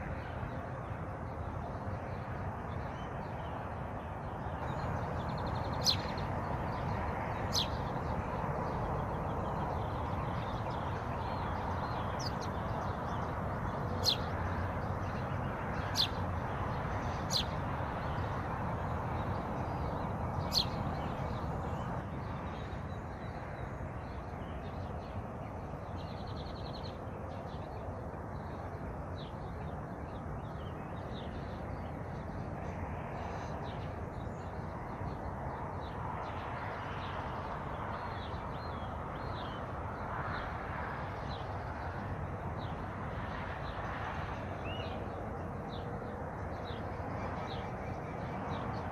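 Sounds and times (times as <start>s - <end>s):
steady rushing background noise: 0.0s - 48.9s
wild birds calling and chirping: 4.4s - 27.8s, 45.7s - 48.9s.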